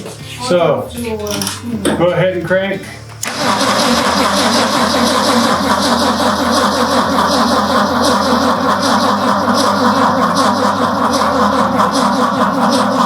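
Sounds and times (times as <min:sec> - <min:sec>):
truck starter motor cranking: 0:03.2 - 0:13.0.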